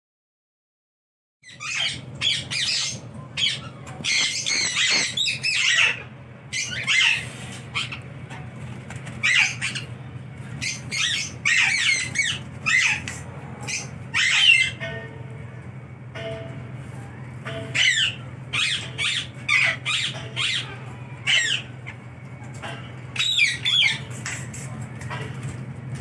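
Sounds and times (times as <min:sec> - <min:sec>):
parrot squawking: 0:01.5 - 0:08.4, 0:09.2 - 0:14.9, 0:17.5 - 0:22.0, 0:23.2 - 0:24.7
steady low hum: 0:01.5 - 0:26.0.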